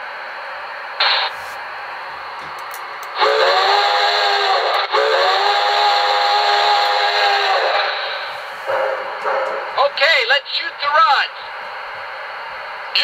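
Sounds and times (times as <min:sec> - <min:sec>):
chime steam whistle blasts: 0:03.2 - 0:08.4.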